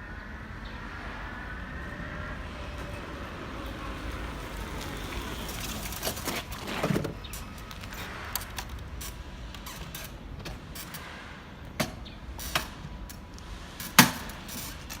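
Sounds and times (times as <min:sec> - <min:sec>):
electric motorcycle rumble and whine: 0:00.0 - 0:09.4.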